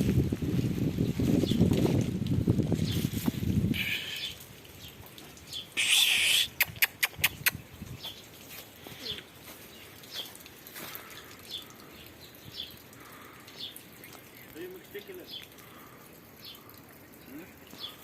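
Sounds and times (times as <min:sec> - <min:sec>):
birds chirping faintly: 0:03.8 - 0:18.0.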